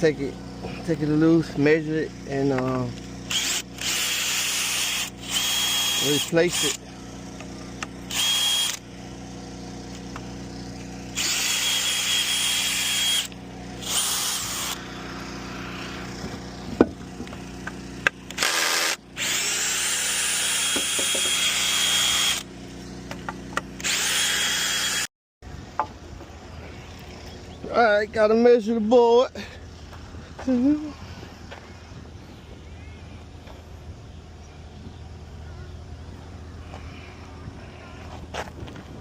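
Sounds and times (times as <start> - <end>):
steady low hum: 0.0 - 39.0
power drill running: 3.0 - 22.8, 23.6 - 25.1.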